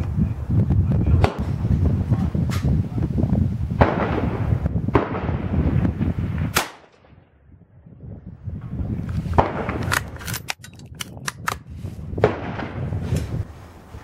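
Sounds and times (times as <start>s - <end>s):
wind buffeting microphone: 0.0s - 14.0s
sharp cracks: 6.5s - 7.2s, 9.4s - 11.6s.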